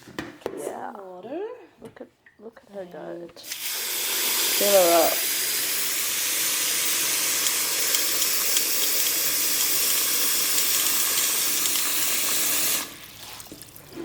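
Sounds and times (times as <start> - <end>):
tap water running into pot: 3.4 - 14.0.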